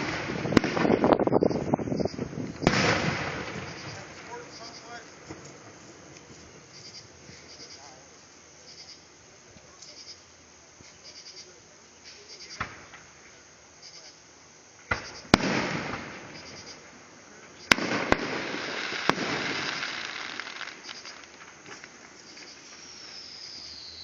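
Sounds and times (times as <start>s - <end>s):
fireworks bangs: 0.0s - 7.3s, 14.9s - 24.0s
fireworks crackle: 0.0s - 8.4s, 14.8s - 24.0s.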